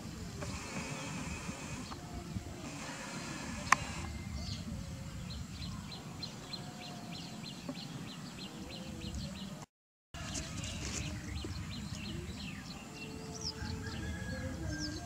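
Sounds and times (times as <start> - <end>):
sharp click: 3.5 - 4.0.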